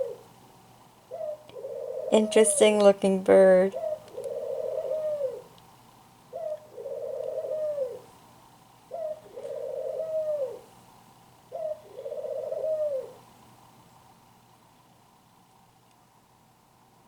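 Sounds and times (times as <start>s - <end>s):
dove cooing: 0.0s - 0.4s, 1.0s - 5.6s, 6.2s - 8.2s, 8.8s - 10.8s, 11.4s - 13.4s.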